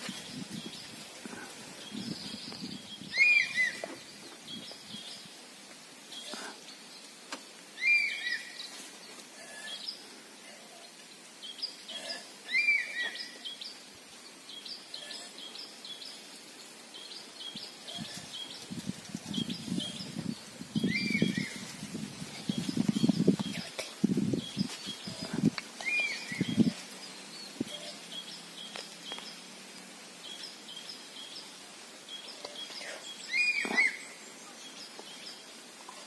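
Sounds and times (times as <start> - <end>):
higher bird chirping: 0.3 - 5.3, 7.8 - 8.8, 17.0 - 29.4, 30.2 - 36.0
bird whistled call: 3.1 - 3.8, 7.8 - 8.5, 33.3 - 34.0.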